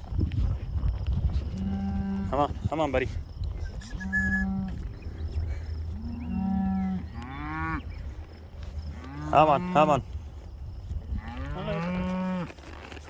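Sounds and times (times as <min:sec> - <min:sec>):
cattle mooing: 0:03.9 - 0:04.8, 0:06.0 - 0:07.9, 0:08.9 - 0:10.0, 0:11.2 - 0:12.5.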